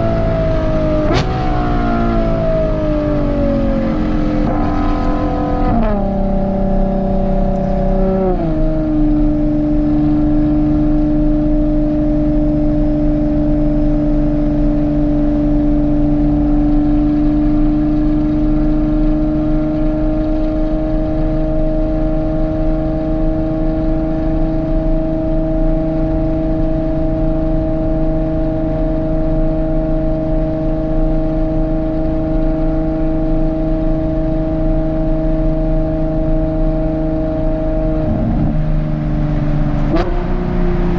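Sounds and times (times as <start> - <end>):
car engine shifting up: 0.0 - 14.5, 33.4 - 40.9.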